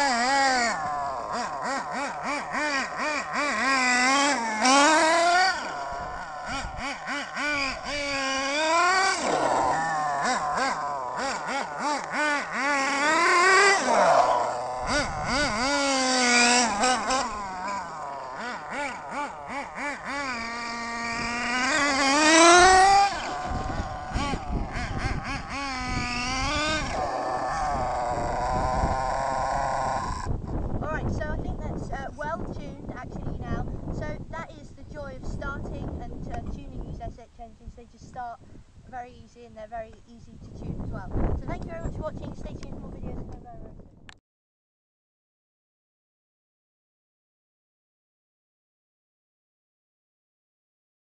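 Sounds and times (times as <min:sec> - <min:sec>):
model engine revving: 0:00.0 - 0:30.4.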